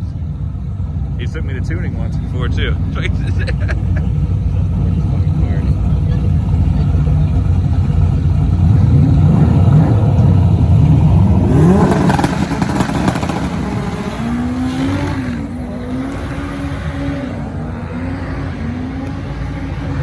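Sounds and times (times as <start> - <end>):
race car engine revving: 0.0 - 20.0
loud rush: 8.3 - 18.9.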